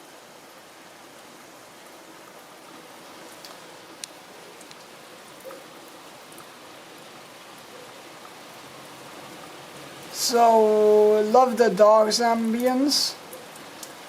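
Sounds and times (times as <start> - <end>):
steady rain falling: 0.0 - 14.0
sharp drips: 12.4 - 14.0.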